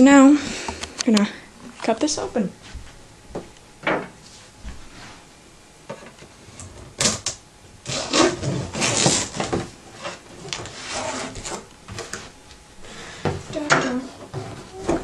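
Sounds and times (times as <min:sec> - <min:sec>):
blade slicing through cardboard: 0:07.0 - 0:09.6.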